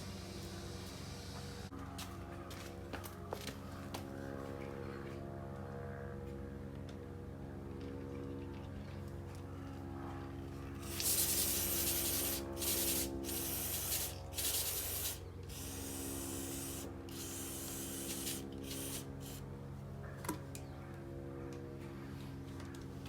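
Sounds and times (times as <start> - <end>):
aerosol spray can hissing: 10.8 - 19.4.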